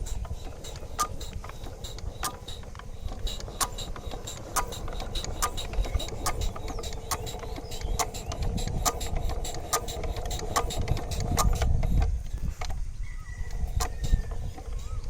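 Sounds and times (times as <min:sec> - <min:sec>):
sewing machine humming: 0:00.0 - 0:11.8
sewing machine stitching clicks: 0:00.0 - 0:12.1.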